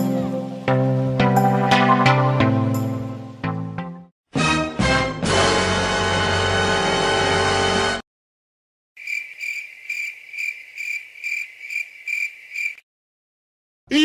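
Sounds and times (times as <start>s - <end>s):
music: 0.0s - 8.0s
cricket chirping: 9.0s - 12.8s.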